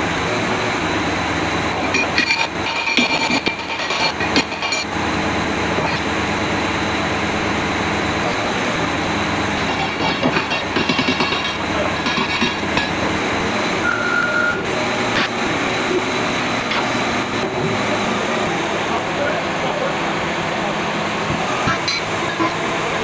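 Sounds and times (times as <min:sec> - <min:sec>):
heavy diesel machinery running: 0:00.0 - 0:23.0
metallic rattling and clanking: 0:01.7 - 0:06.1, 0:09.4 - 0:13.6.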